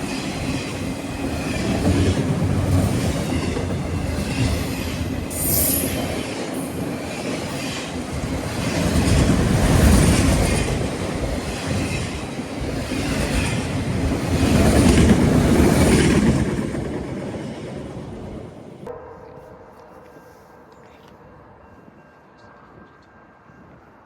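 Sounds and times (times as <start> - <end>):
train wheels rumbling on rail: 0.0 - 18.9.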